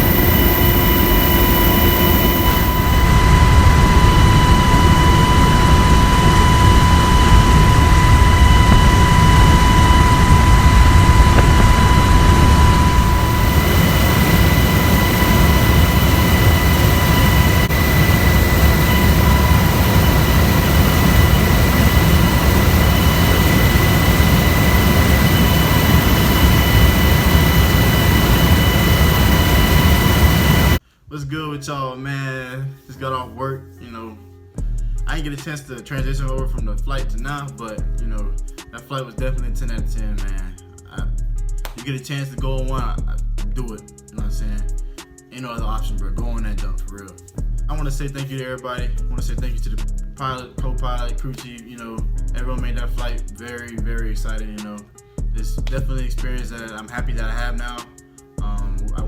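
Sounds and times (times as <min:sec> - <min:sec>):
helicopter rotor and engine rumble: 0:00.0 - 0:30.8
high-pitched whines: 0:00.0 - 0:30.8.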